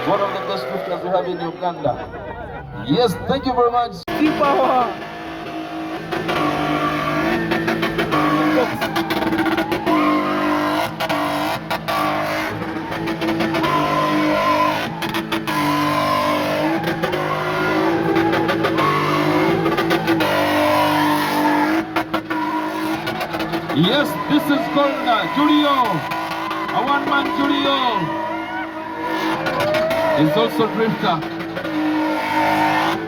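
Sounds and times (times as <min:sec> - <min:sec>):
car engine revving high: 0:00.0 - 0:01.8, 0:04.1 - 0:33.0
tyres squealing: 0:05.6 - 0:33.0.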